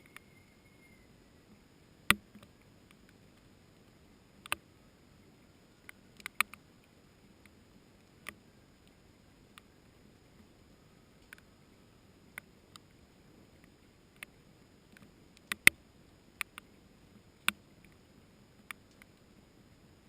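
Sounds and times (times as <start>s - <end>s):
faint rain hiss: 0.0s - 20.0s.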